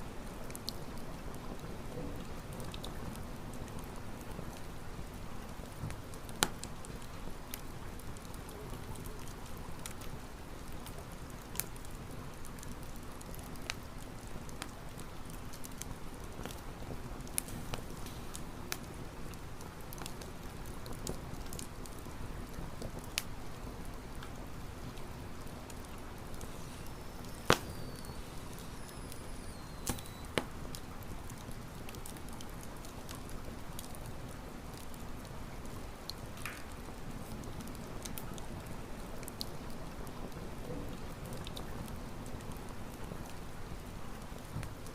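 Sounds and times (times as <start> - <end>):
wood crackling in campfire: 0.0 - 44.9
fire hissing: 17.3 - 18.8, 25.6 - 30.9
faint high whistles: 26.5 - 30.4.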